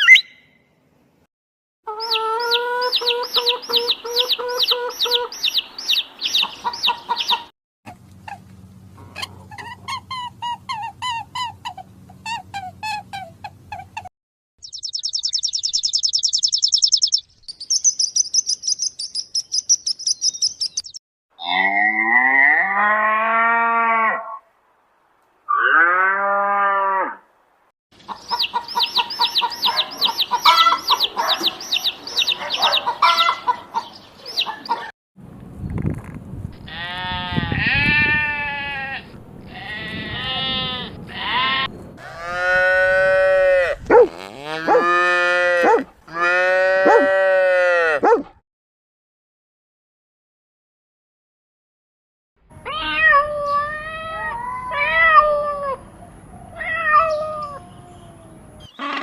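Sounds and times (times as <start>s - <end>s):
bird trill: 0.0s - 0.6s, 2.0s - 7.5s, 14.6s - 21.0s, 28.2s - 34.8s
birds chirping and peeping: 1.9s - 7.5s, 14.6s - 21.0s, 28.0s - 34.9s, 56.0s - 59.0s
long drawn-out bird calls: 1.9s - 7.5s, 28.1s - 34.9s, 56.0s - 59.0s.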